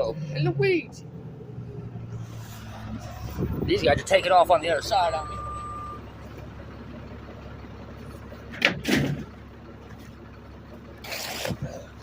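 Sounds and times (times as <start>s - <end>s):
garbage truck engine rumbling: 0.0s - 12.0s
sharp clunk: 8.5s - 9.3s.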